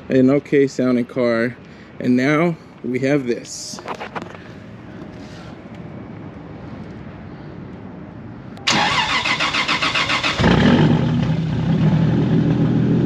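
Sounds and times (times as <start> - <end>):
car engine starting and idling: 8.6 - 13.0
starter motor cranking: 8.7 - 10.6.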